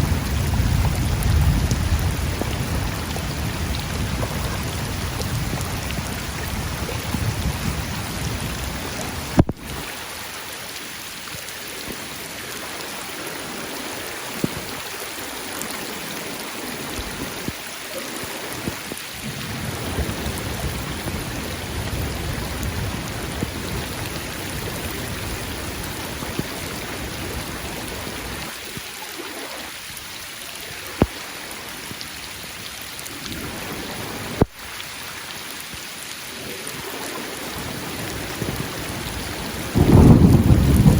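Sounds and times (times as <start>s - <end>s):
low rolling thunder: 0.0s - 9.4s, 19.2s - 28.5s, 37.6s - 40.9s
heavy rain: 0.0s - 40.9s.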